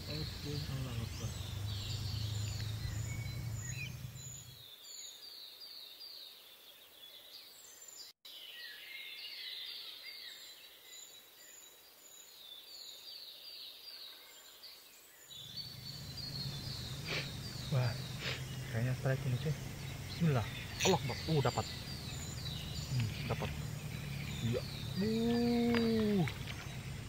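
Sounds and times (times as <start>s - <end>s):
low rumble: 0.0s - 4.6s, 15.5s - 27.0s
bird song with high whistled notes: 0.0s - 27.0s.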